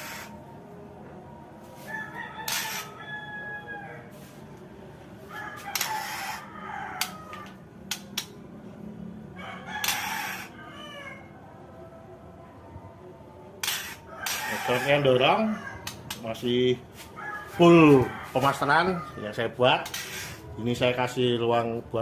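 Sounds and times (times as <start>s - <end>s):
harsh rasping bird calls: 0.0s - 0.4s, 2.4s - 3.0s, 5.7s - 7.1s, 13.6s - 16.2s, 19.8s - 20.5s
sharp clicking bird notes: 7.0s - 8.4s.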